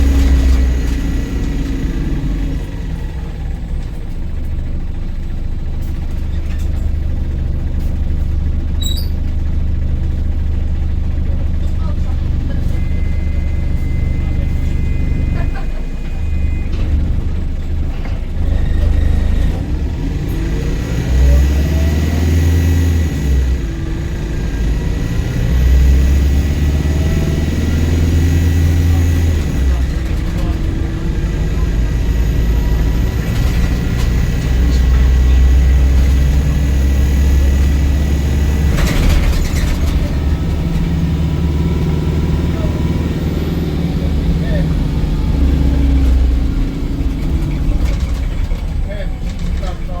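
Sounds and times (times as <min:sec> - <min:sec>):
bus engine rumble: 0:00.0 - 0:50.0.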